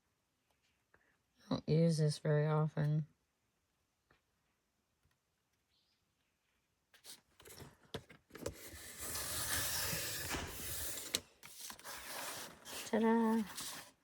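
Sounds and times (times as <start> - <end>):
paper trimmer blade scraping: 8.5 - 13.9.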